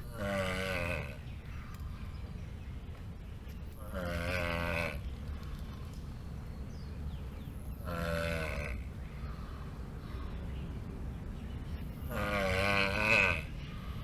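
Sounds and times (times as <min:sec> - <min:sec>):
turtle calling: 0:00.0 - 0:02.1, 0:07.3 - 0:10.5, 0:11.8 - 0:14.0.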